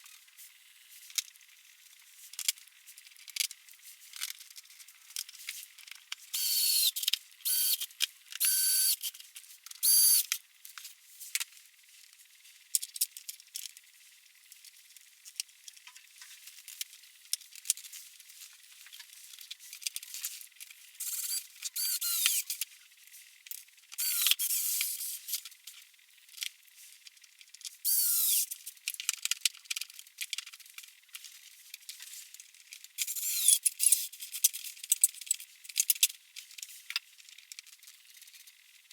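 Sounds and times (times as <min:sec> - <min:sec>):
squeak: 0:21.0 - 0:22.6.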